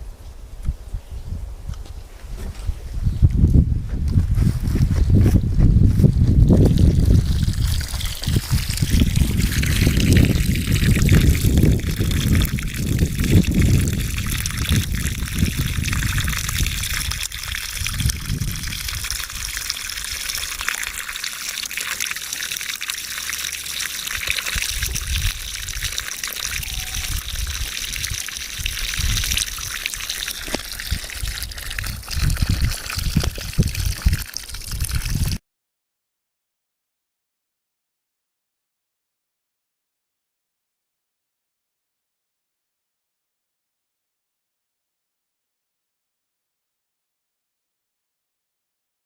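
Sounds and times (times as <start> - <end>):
water trickling: 6.4 - 35.4.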